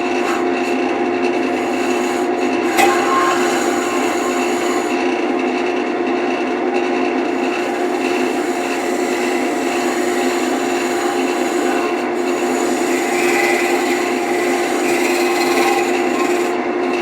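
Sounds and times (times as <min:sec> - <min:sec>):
tool rubbing against spinning wood: 0:00.0 - 0:05.2, 0:07.2 - 0:17.0
wood lathe motor hum: 0:00.0 - 0:17.0.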